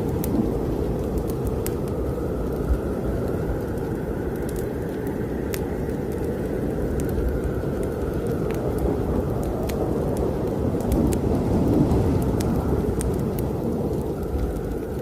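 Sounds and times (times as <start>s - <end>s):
snowstorm wind rumbling: 0.0s - 15.0s
wood fire crackling: 0.0s - 15.0s.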